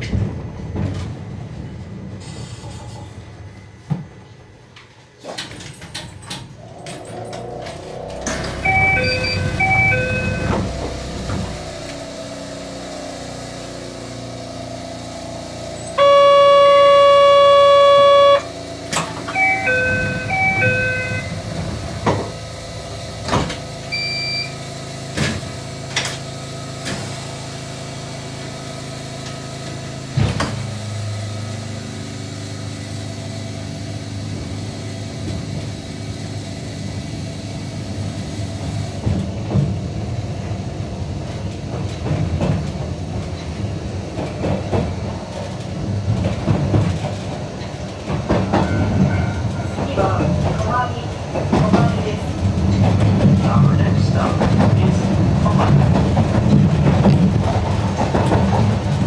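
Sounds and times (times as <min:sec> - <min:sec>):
train running rumble: 0:00.0 - 0:59.0
electronic chime: 0:08.4 - 0:10.6, 0:19.3 - 0:21.4
train horn: 0:16.0 - 0:18.6, 0:19.3 - 0:21.4
wheels clacking over rail joints: 0:38.6 - 0:59.0.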